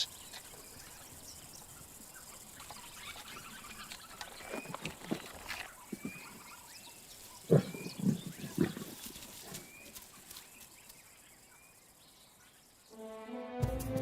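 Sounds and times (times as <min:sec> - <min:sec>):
lion grunting: 0:07.4 - 0:09.0.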